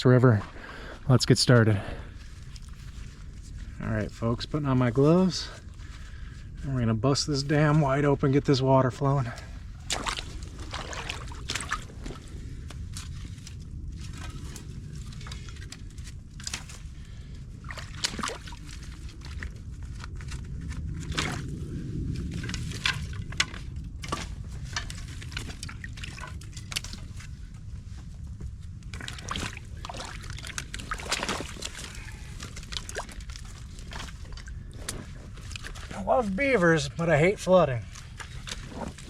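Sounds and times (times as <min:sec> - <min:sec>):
water sloshing and splashing: 0:00.3 - 0:39.0
water rushing: 0:08.7 - 0:12.2.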